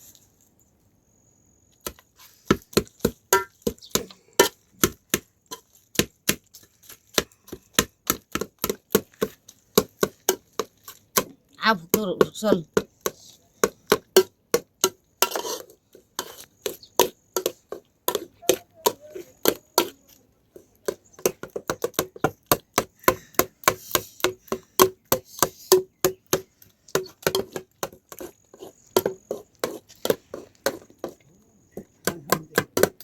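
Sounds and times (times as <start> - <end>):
knife chopping on wood: 1.8 - 6.5, 7.1 - 11.4, 20.9 - 31.2, 31.8 - 33.0.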